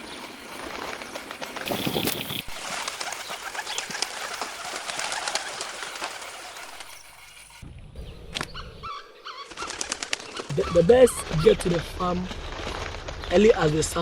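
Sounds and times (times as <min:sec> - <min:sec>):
flock of birds chirping: 0:00.0 - 0:14.0.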